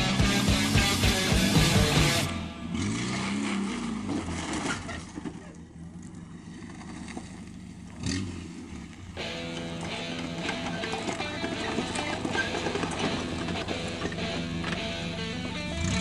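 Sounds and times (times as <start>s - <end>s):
rock music: 0.0s - 3.2s, 9.2s - 16.0s
engine revving: 0.0s - 16.0s.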